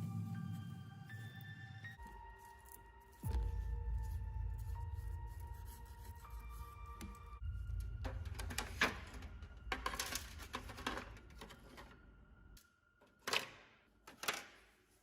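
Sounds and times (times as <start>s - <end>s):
small plastic parts clicking: 13.2s - 14.7s.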